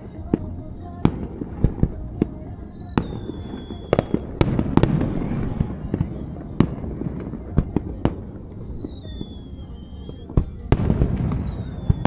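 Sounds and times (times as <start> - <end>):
firework bangs: 0.0 - 12.0
rumbling firework crackle: 0.0 - 12.0
high falling firework whistle: 1.9 - 12.0.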